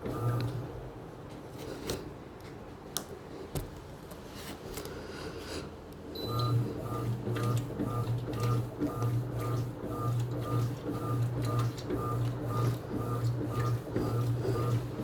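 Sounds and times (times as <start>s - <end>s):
washing machine motor pulsing hum: 0.0s - 1.2s, 6.1s - 15.0s.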